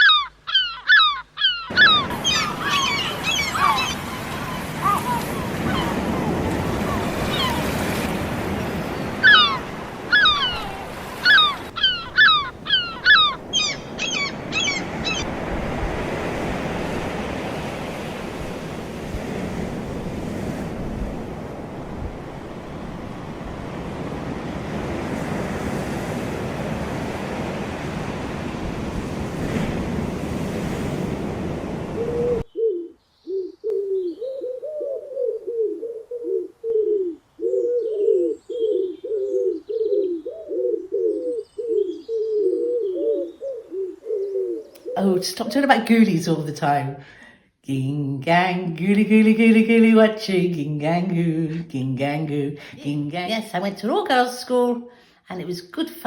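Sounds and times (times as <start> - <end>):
sharp repeated bird calls: 0.0 - 7.8, 8.9 - 15.3
pigeon cooing: 0.0 - 8.0, 9.2 - 15.3, 32.0 - 45.0
wind noise: 1.7 - 32.4
surf washing: 1.7 - 32.5, 44.8 - 56.0.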